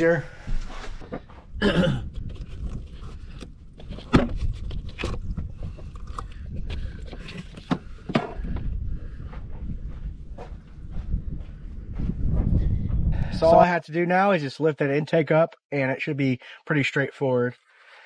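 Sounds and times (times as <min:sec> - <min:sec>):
wind rumble on microphone: 0:00.0 - 0:13.6.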